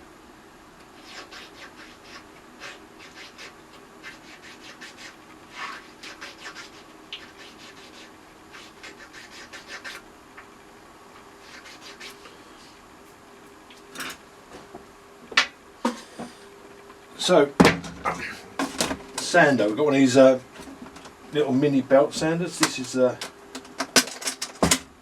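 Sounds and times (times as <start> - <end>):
file scraping wood: 1.0 - 10.0, 11.4 - 12.2.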